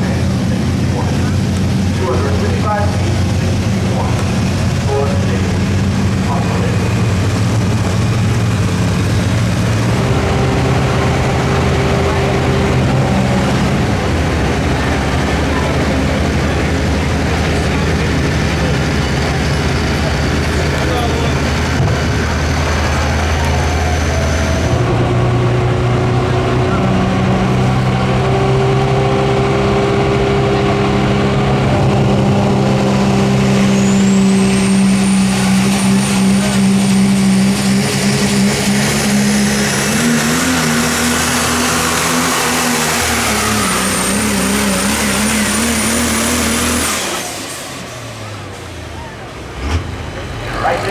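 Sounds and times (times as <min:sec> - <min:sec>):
diesel engine droning loudly: 0:00.0 - 0:50.9
turbocharger whistle: 0:09.7 - 0:15.7, 0:19.9 - 0:25.0, 0:32.6 - 0:49.3.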